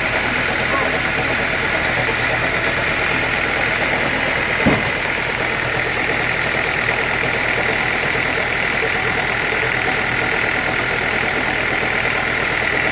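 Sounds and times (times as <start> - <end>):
sawmill machinery running: 0.0 - 12.9
sharp knock: 4.6 - 5.0.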